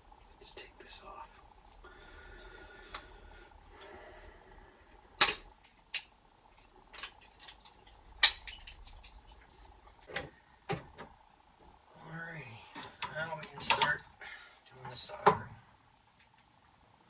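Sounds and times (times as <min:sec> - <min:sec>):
metal parts clinking and clanking: 0:05.2 - 0:10.0, 0:12.8 - 0:14.1.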